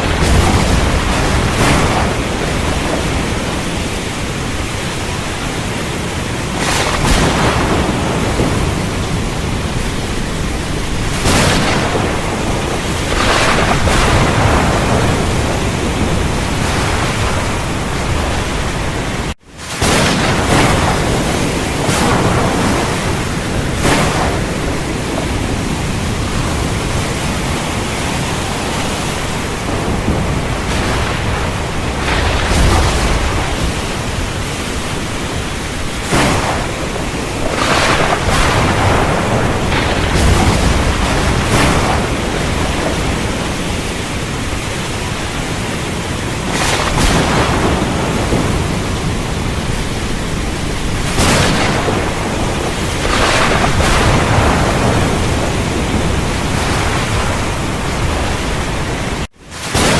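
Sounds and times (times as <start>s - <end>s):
heavy rain falling: 0.0s - 59.9s
thunder cracks and rumbles: 0.0s - 59.9s.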